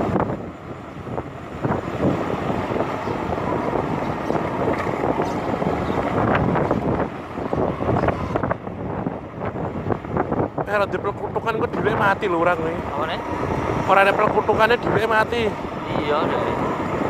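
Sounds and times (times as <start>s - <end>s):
moving vehicle noise: 0.0s - 17.0s
wind buffeting microphone: 0.0s - 17.0s.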